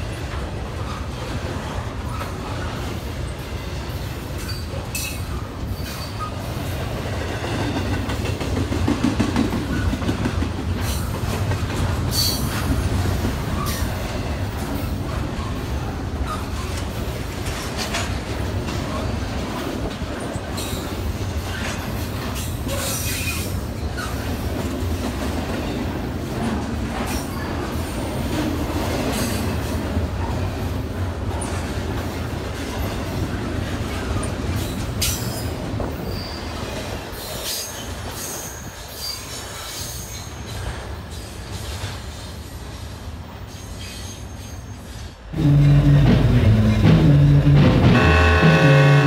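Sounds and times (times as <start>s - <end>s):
wheels clicking over rail joints: 0.0s - 42.8s
train wheels rumbling on rail: 0.0s - 49.0s
wheel squeal: 36.0s - 36.6s.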